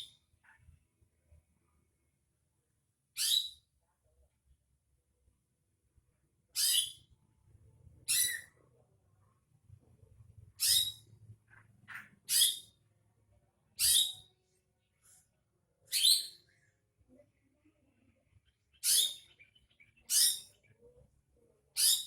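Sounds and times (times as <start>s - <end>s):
bird high-pitched calls: 3.2s - 3.6s, 6.6s - 7.0s, 8.1s - 8.6s, 10.6s - 11.1s, 11.9s - 12.8s, 13.8s - 14.3s, 15.9s - 16.5s, 18.7s - 20.7s, 21.8s - 22.0s.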